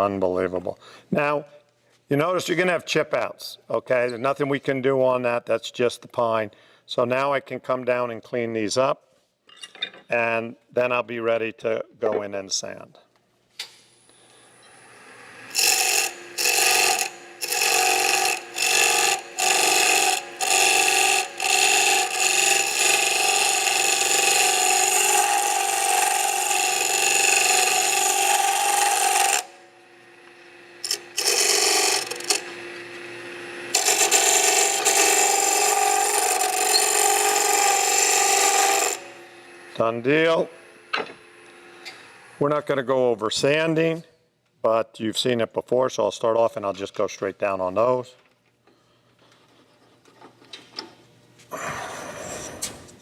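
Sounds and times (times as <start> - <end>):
chisel cutting wood on lathe: 14.4 - 29.6, 30.5 - 42.2.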